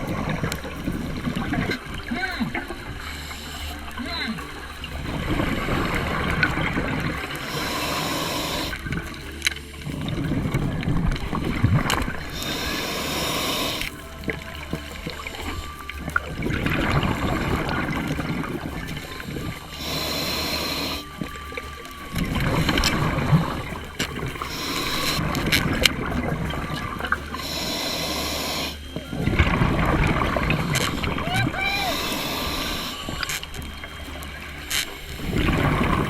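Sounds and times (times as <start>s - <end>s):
gurgle of exhaled bubbles: 0.0s - 36.0s
hissing regulator inhalations: 0.0s - 36.0s.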